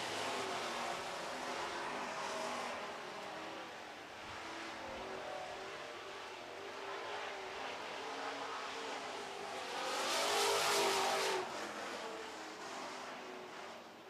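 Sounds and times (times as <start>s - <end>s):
truck engines racing at full throttle: 4.3s - 13.9s.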